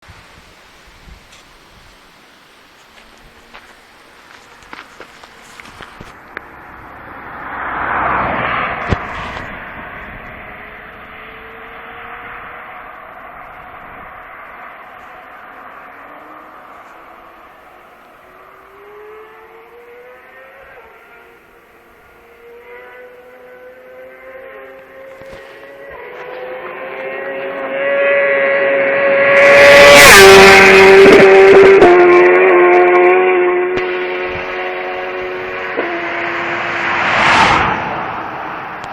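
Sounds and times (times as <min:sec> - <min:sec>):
sportbike passing at speed: 0:04.3 - 0:38.9.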